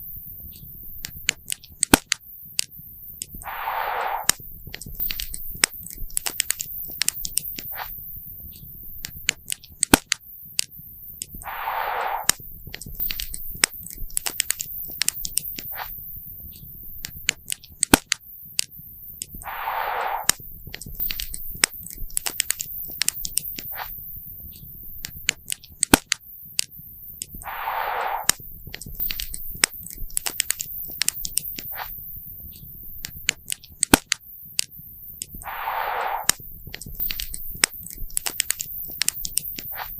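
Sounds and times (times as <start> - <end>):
short hiss: 3.4 - 4.4, 11.4 - 12.4, 19.4 - 20.4, 27.4 - 28.5, 35.4 - 38.0.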